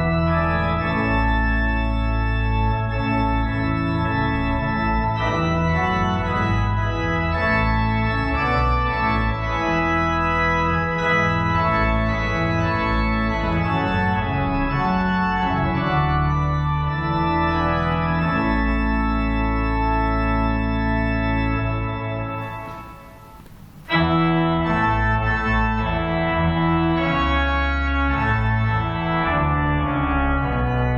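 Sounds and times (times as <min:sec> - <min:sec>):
organ chords: 0:00.0 - 0:30.9.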